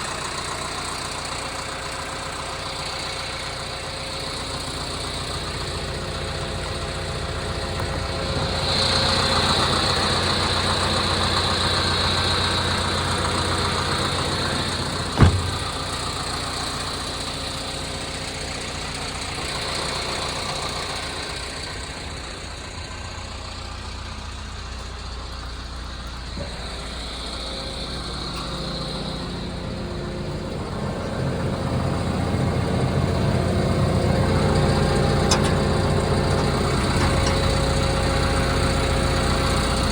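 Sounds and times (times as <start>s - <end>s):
excavator diesel engine running: 0.0s - 39.9s
high hydraulic whine: 13.5s - 16.2s
sharp clunk: 15.2s - 16.0s.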